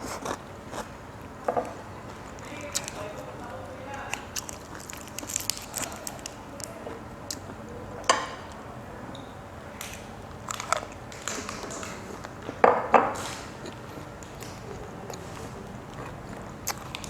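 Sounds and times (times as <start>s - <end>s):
person chewing food: 0.0s - 7.6s, 9.8s - 17.0s
wet mouth clicks: 13.2s - 17.0s.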